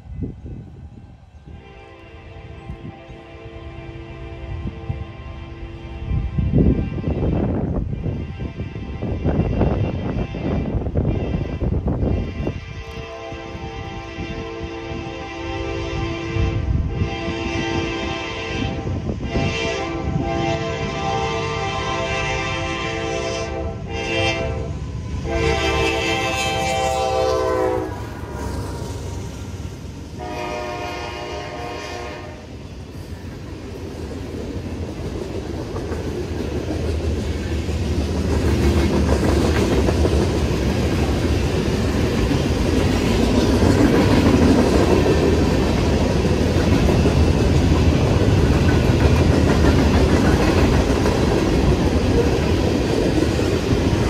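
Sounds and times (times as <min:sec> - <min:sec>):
locomotive horn blasts: 0:01.5 - 0:29.2, 0:30.2 - 0:32.5
freight cars rumbling and clacking: 0:32.9 - 0:54.0.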